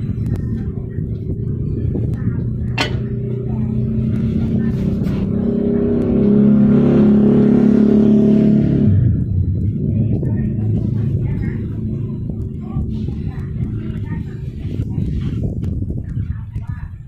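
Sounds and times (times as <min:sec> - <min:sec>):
sharp clack: 0:02.7 - 0:03.4.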